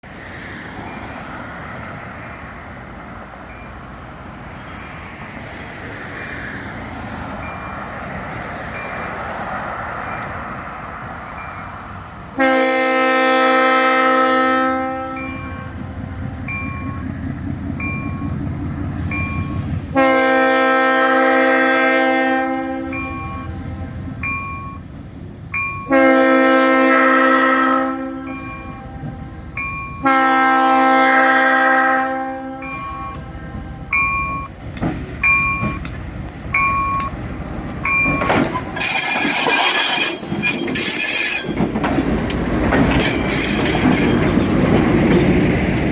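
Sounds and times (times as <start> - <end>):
diesel locomotive running: 0.0 - 45.9
air horn chord blasts: 25.8 - 28.9, 30.0 - 33.3.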